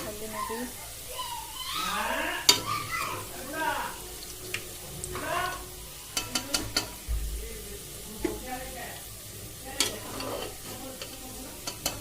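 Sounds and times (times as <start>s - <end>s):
faint oil sizzle: 0.0s - 12.0s
metal utensil clicking against pan: 2.4s - 3.3s, 4.2s - 7.1s, 7.9s - 8.6s, 9.6s - 12.0s
low thump: 7.0s - 7.6s.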